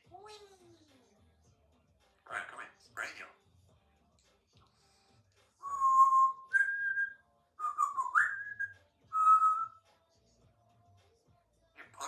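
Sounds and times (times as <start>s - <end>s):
parrot whistling notes: 5.6s - 9.8s.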